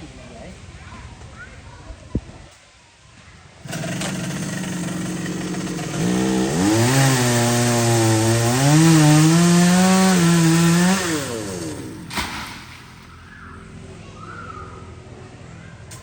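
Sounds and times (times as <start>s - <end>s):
chainsaw cutting wood: 3.6s - 13.2s.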